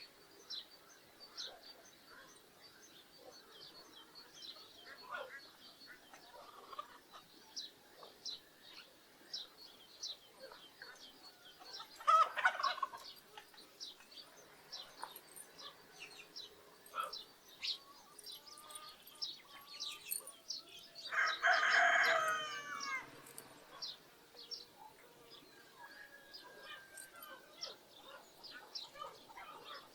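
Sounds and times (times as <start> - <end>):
small birds chirping: 0.0 - 29.9
rooster crowing: 21.1 - 23.1.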